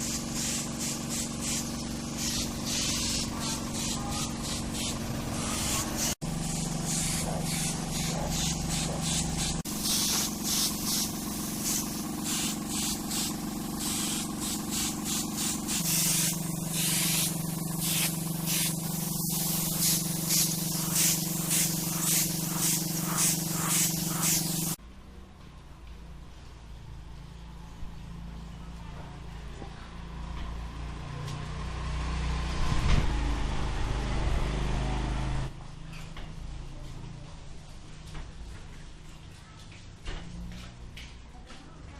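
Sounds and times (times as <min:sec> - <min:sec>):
spray gun hissing: 0:00.0 - 0:24.8.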